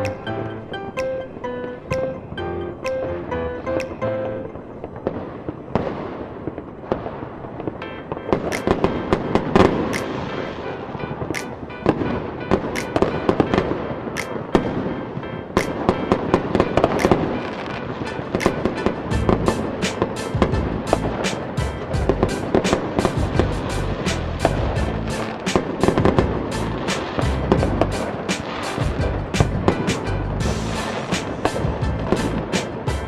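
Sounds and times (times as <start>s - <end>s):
fireworks bangs and crackles: 4.5s - 33.0s.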